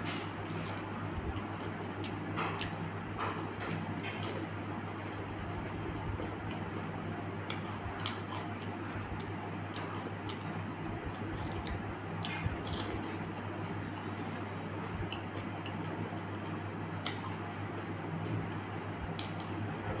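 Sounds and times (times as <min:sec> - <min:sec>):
steady low hum: 0:00.0 - 0:20.0
crunching crisp shells: 0:12.2 - 0:13.2.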